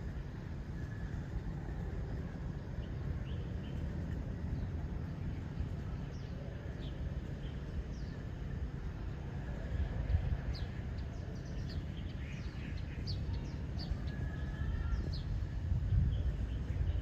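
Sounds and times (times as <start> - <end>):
birds chirping: 0.0 - 17.0
steady low rumble: 0.0 - 17.0
long bird whistle: 11.8 - 15.6.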